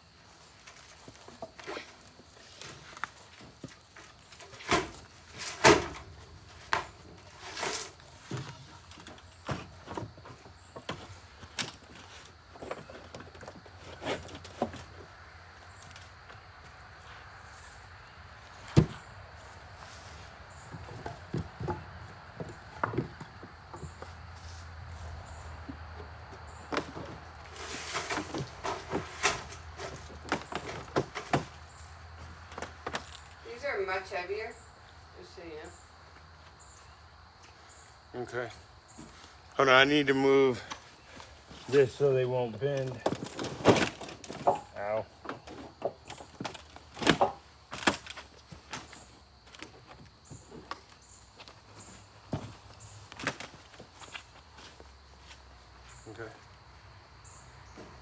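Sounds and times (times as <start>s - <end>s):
tin roofing sheets clanking: 0.6s - 15.0s, 26.6s - 34.0s, 42.8s - 54.1s
footsteps: 47.9s - 56.8s.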